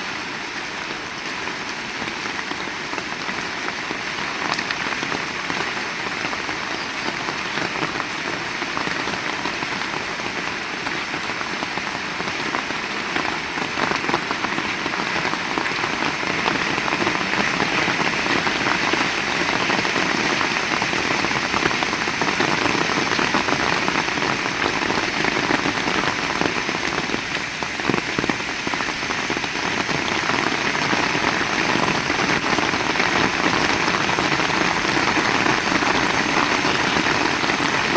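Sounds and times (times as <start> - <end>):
heavy rain falling: 0.0 - 37.9.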